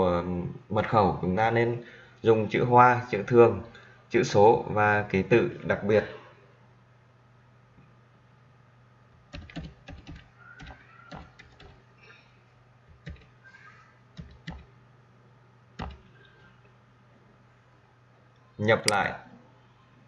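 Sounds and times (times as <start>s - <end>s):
computer keyboard typing: 9.2s - 11.8s, 12.9s - 13.4s, 14.1s - 14.7s, 15.8s - 16.5s.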